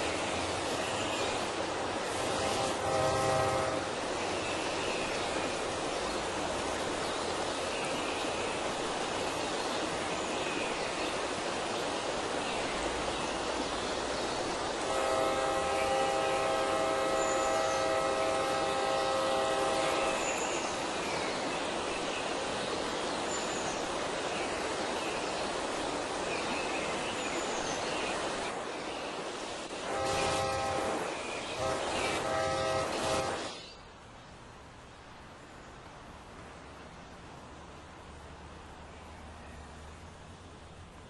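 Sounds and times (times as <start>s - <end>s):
steady rushing noise: 0.0s - 35.4s
train horn chord: 2.1s - 4.2s, 14.8s - 20.8s, 29.8s - 33.6s.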